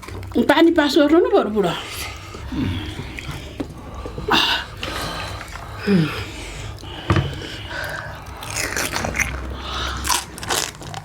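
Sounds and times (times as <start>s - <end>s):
crisp shells crunching when chewed: 2.2s - 11.0s.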